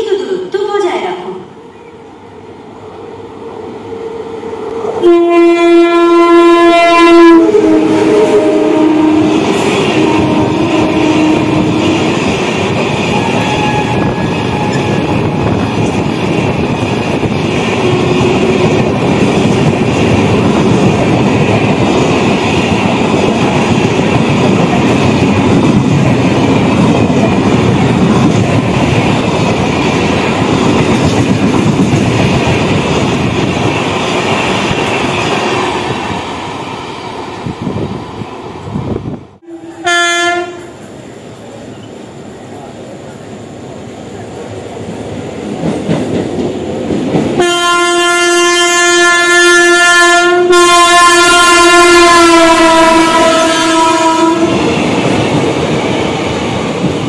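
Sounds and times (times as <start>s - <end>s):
train coaches rumbling: 0.0s - 57.0s
train horn blast: 5.0s - 12.1s, 13.1s - 15.3s, 39.4s - 40.8s, 47.4s - 54.7s.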